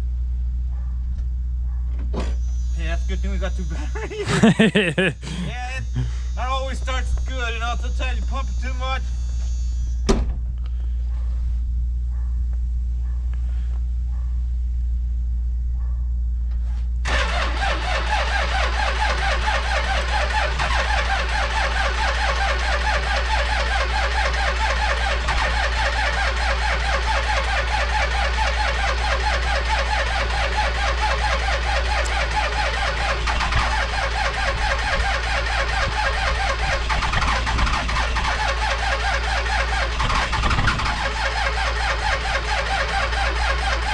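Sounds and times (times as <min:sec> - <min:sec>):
car engine cranking: 0:03.3 - 0:08.8, 0:17.0 - 0:43.9.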